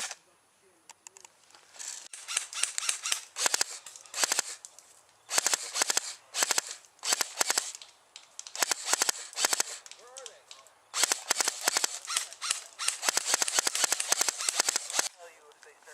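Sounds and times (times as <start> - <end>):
airsoft guns firing bursts: 2.1 - 4.6, 5.3 - 7.8, 8.5 - 10.3, 10.9 - 15.2.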